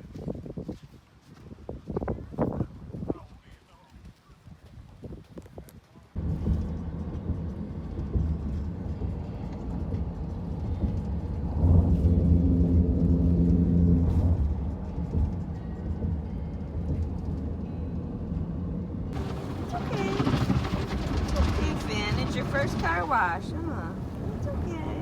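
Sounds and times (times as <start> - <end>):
car interior rumble: 6.2 - 25.0
droning hum: 6.2 - 25.0.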